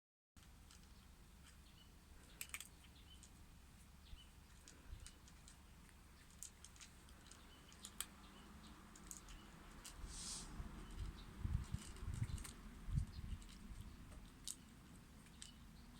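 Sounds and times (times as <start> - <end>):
rodent crunching hard food: 2.2 - 3.4, 10.8 - 15.8.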